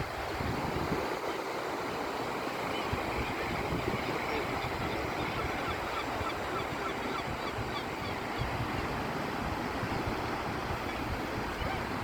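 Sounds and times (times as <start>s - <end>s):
wind on microphone: 0.0s - 1.2s, 2.8s - 12.0s
surf washing on beach: 0.0s - 12.0s
faint gull calls: 4.2s - 8.5s, 10.9s - 12.0s.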